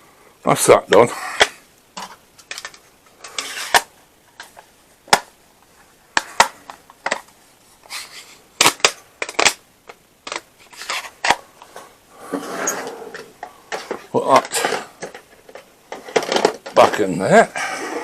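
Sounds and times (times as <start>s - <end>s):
scraping rustle: 10.6s - 16.2s.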